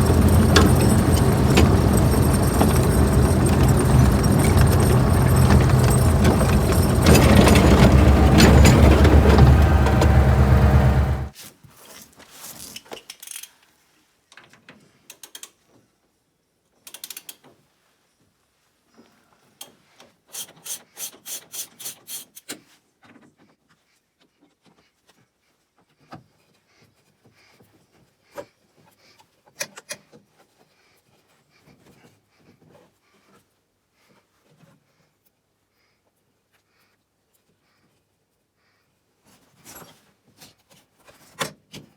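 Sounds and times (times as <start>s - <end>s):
metal tools clinking: 0.0s - 11.3s.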